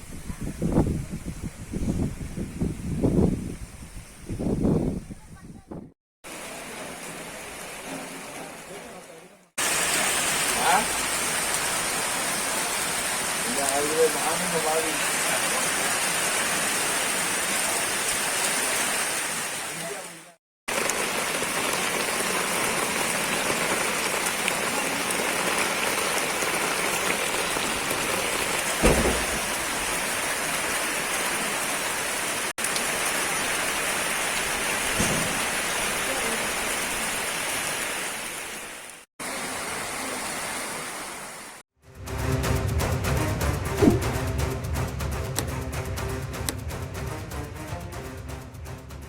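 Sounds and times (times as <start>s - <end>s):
heavy rain falling: 6.2s - 41.6s.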